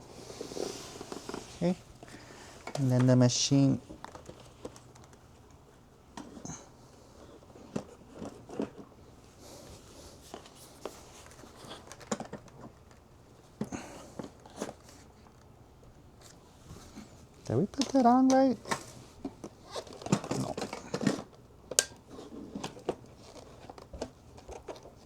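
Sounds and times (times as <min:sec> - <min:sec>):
plastic parts clicking and crinkling: 0:03.9 - 0:06.5, 0:07.2 - 0:09.0, 0:10.2 - 0:15.5, 0:17.4 - 0:25.0.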